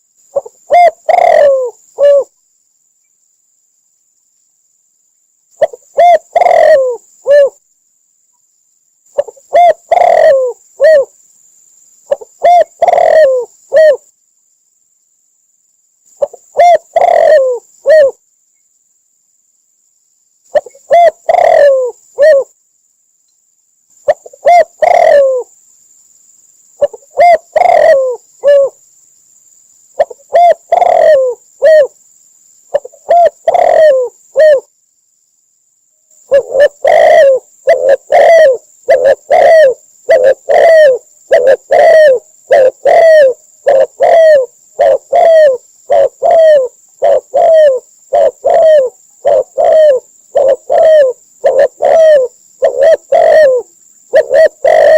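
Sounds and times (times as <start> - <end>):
dove cooing: 0.3 - 2.4, 5.6 - 7.6, 9.1 - 11.2, 12.1 - 14.1, 16.2 - 18.2, 20.5 - 22.5, 24.0 - 25.5, 26.8 - 28.8, 30.0 - 32.0, 32.7 - 34.7, 36.3 - 54.9.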